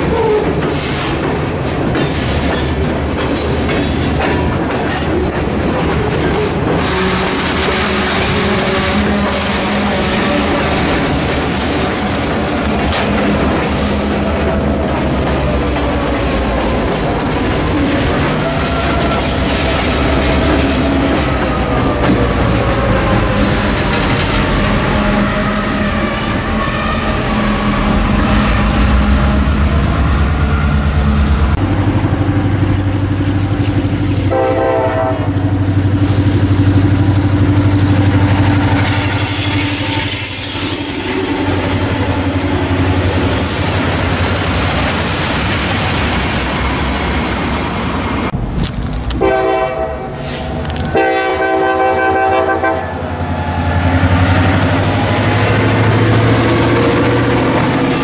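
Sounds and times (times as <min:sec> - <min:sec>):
locomotive engines running: 0:00.0 - 0:49.2, 0:52.9 - 0:58.0
freight cars rolling by: 0:00.0 - 0:58.0
locomotive air horn: 0:06.7 - 0:11.2, 0:23.3 - 0:29.4, 0:34.2 - 0:35.4, 0:38.8 - 0:42.3, 0:49.2 - 0:53.1.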